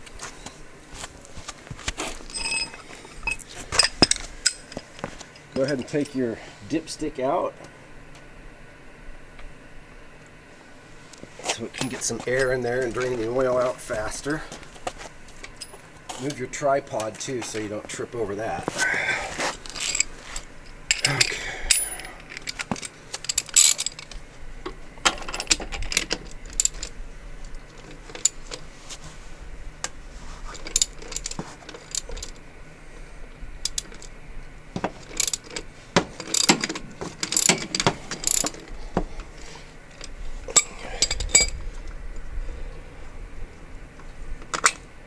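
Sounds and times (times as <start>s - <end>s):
ratchet wrench clicking: 20.9s - 24.2s, 35.1s - 35.6s, 36.2s - 38.6s.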